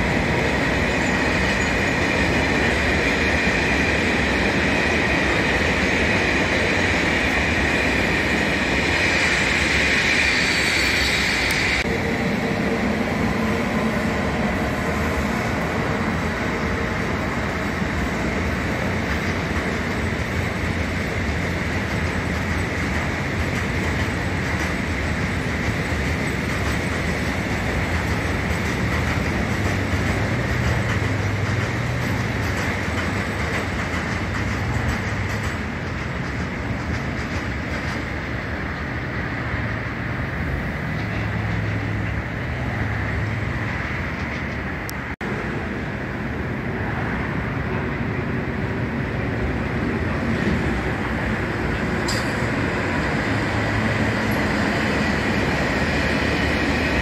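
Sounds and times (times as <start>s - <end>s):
freight train wagons rumbling: 0.0s - 57.0s
high wheel squeal: 0.6s - 11.9s.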